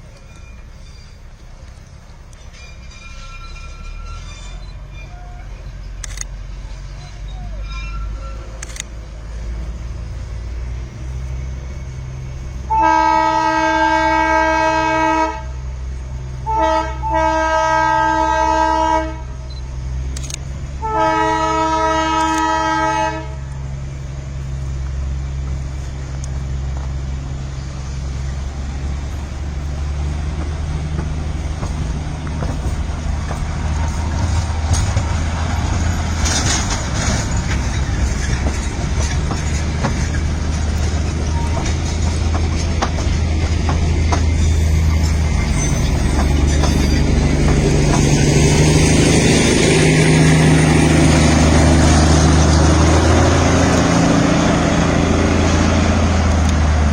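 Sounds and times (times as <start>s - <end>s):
train running with clatter: 0.0s - 56.9s
train horn blasts: 12.7s - 15.6s, 16.4s - 19.5s, 20.8s - 23.6s.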